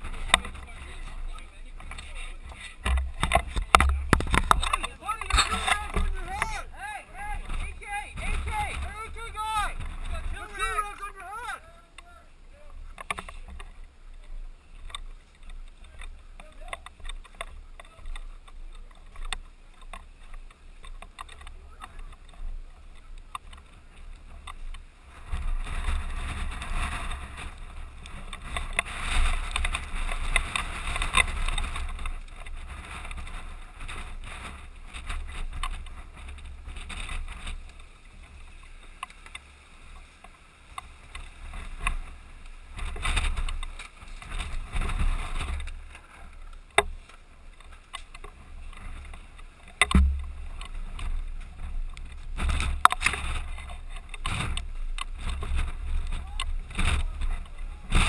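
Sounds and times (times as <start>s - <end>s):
rustling and rubbing of gear: 12.8s - 58.0s.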